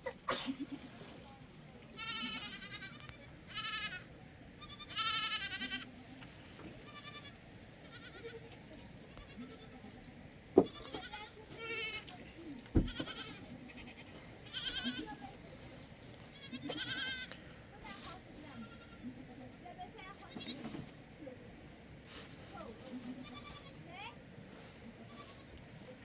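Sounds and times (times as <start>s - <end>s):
goats bleating: 2.0s - 5.9s, 6.8s - 8.4s, 10.7s - 12.2s, 12.8s - 15.2s, 16.3s - 17.4s, 18.6s - 19.0s.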